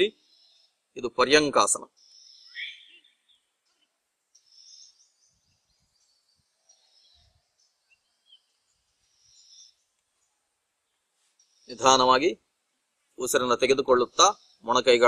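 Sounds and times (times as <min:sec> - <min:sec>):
faint high bird chirps: 0:00.0 - 0:00.8, 0:01.6 - 0:10.3, 0:13.9 - 0:15.0.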